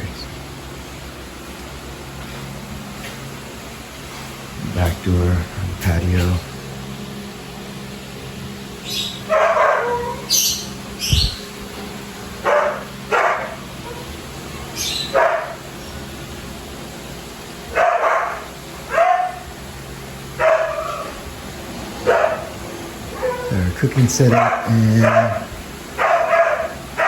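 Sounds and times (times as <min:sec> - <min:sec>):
dog barking: 0:09.2 - 0:10.4, 0:12.4 - 0:14.2, 0:15.0 - 0:15.7, 0:17.7 - 0:19.6, 0:20.4 - 0:21.2, 0:22.0 - 0:23.6, 0:24.3 - 0:27.0.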